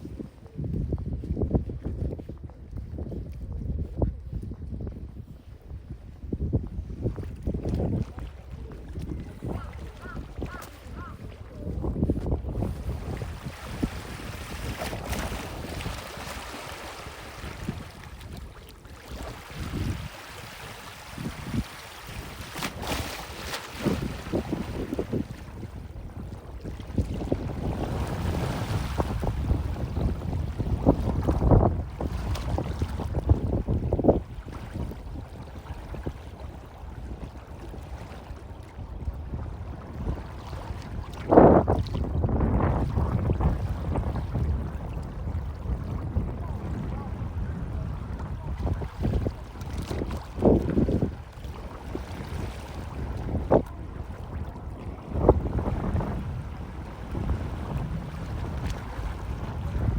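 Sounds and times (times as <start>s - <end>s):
wind buffeting microphone: 0.0s - 59.9s
sea water lapping: 6.8s - 59.9s.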